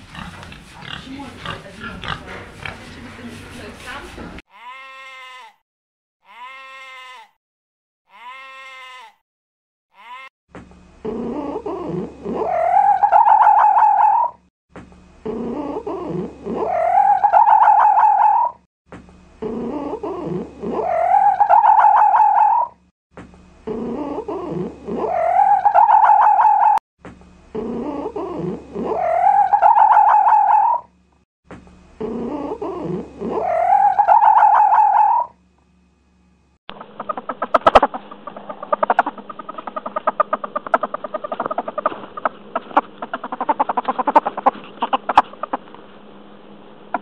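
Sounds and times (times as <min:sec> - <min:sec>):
animal call rising into whine: 0:11.8 - 0:14.5, 0:15.2 - 0:18.6, 0:19.6 - 0:22.8, 0:23.7 - 0:26.8, 0:27.6 - 0:31.0, 0:32.0 - 0:35.4.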